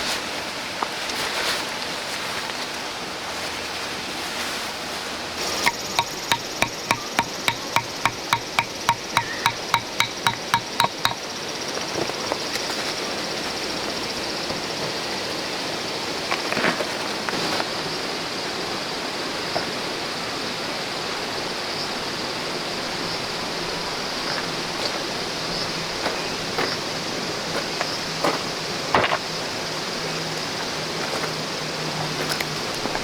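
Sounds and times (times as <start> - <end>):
light knocks: 5.6 - 11.2.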